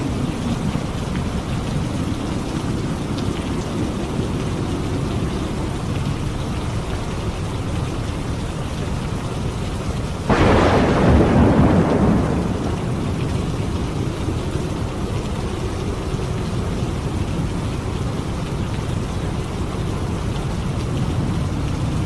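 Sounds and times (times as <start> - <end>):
rain falling: 0.0 - 22.0
thunder clap rumbling: 10.2 - 17.5.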